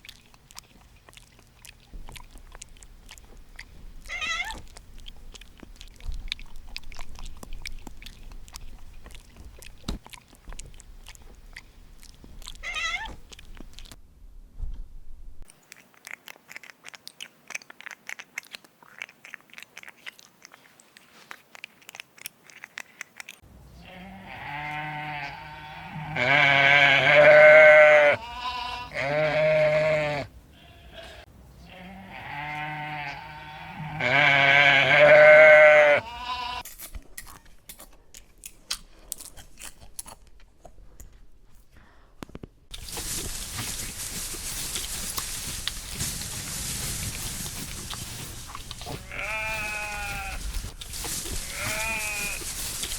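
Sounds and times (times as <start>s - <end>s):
goat or sheep bleating: 23.8s - 36.6s, 48.9s - 50.5s, 51.4s - 52.5s
steady hiss: 42.7s - 52.9s.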